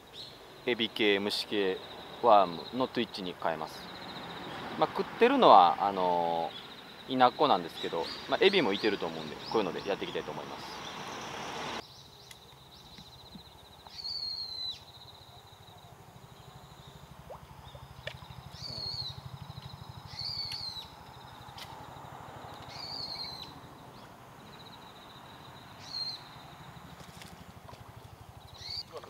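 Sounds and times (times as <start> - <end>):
bird calling: 5.5 - 11.8, 12.9 - 29.0.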